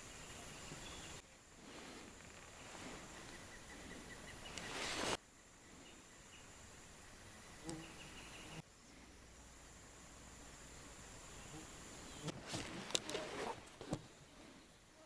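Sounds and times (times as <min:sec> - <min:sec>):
small click: 0:07.6 - 0:07.8.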